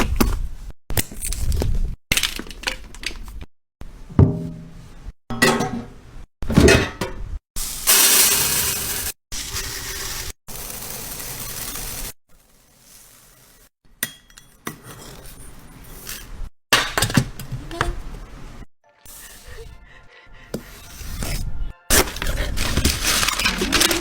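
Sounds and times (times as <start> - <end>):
small items clinking and rustling: 21.9 - 24.0.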